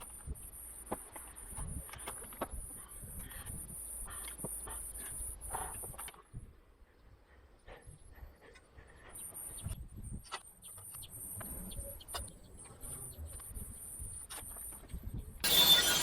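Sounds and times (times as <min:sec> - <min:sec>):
faint birds chirping: 0:00.0 - 0:15.4
loud harsh rasping noise: 0:15.4 - 0:16.0.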